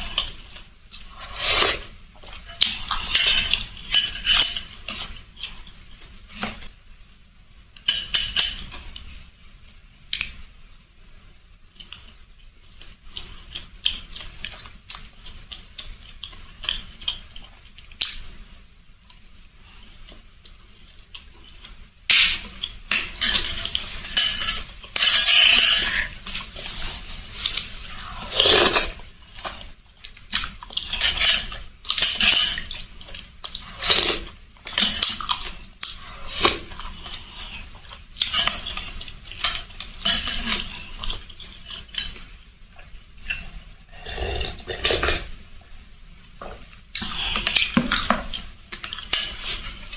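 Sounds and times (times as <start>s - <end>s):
utensils clinking against bowl: 1.2s - 5.1s, 7.8s - 9.0s, 22.1s - 29.6s, 30.3s - 42.3s, 46.5s - 49.9s.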